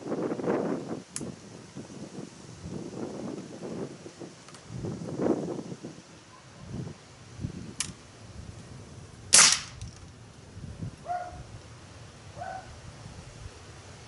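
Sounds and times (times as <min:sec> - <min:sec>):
wind rumble on microphone: 0:00.0 - 0:14.0
air pistol shot crack: 0:09.3 - 0:09.9.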